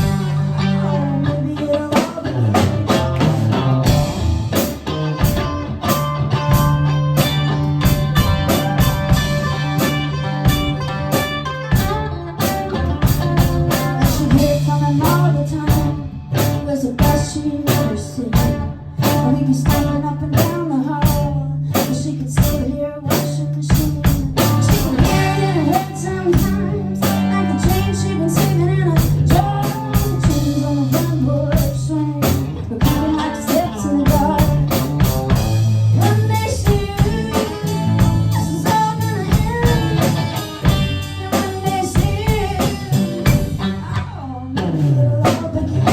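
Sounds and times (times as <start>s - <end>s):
guitar: 0.0s - 45.9s
low bass notes: 0.0s - 45.9s
drum beat: 2.0s - 18.6s, 23.7s - 43.8s.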